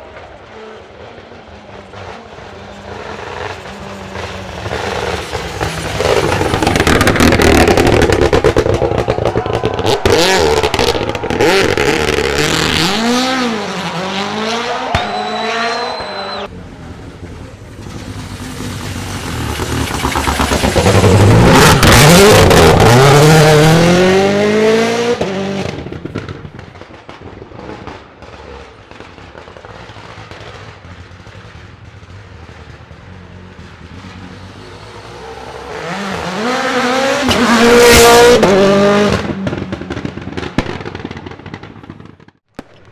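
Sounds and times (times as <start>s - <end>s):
rally car engine revving past: 0.2s - 26.3s, 33.2s - 40.2s.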